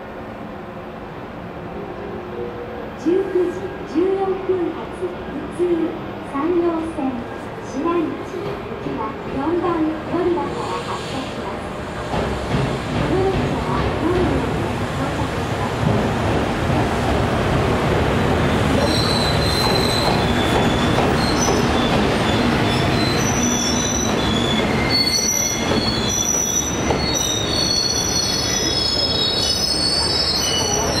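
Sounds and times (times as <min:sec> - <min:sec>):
train rumbling through station: 0:00.0 - 0:31.0
wheels squealing on rails: 0:18.5 - 0:31.0.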